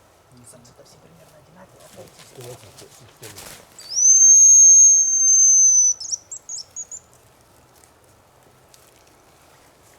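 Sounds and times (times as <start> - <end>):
high bird call whistle: 3.8 - 7.0.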